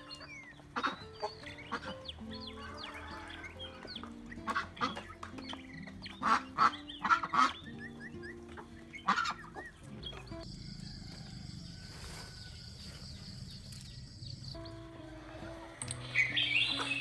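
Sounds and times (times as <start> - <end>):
soft background music: 0.0 - 17.0
waterfowl harsh calls: 15.6 - 17.0.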